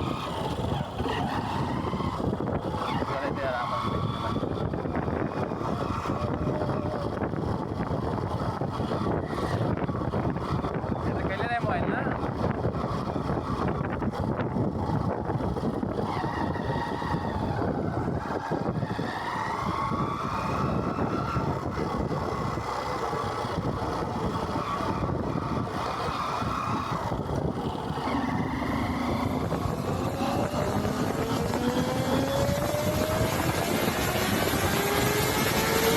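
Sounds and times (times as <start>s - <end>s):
motorcycle engine accelerating: 0.0s - 35.9s
road and wind noise: 0.0s - 35.9s.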